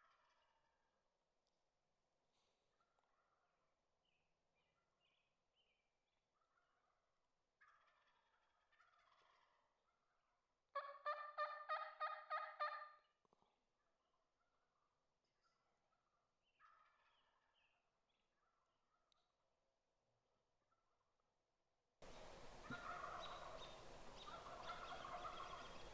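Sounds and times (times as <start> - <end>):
turkey gobbling: 7.6 - 9.6, 10.8 - 13.0, 22.0 - 25.9
faint bird calls: 22.0 - 25.9.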